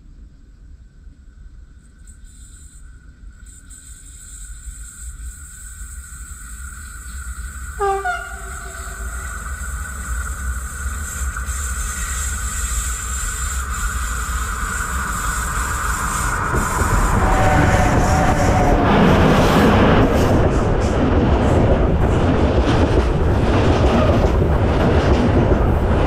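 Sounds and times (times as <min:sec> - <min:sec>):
train rumble and rail hiss: 0:00.0 - 0:26.0
train horn blast: 0:07.8 - 0:09.5, 0:16.1 - 0:20.7.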